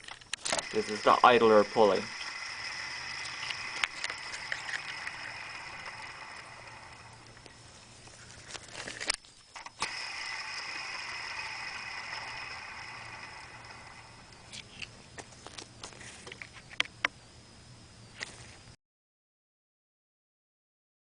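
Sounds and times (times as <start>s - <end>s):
pulley bearing whirring rough: 0.0s - 15.0s.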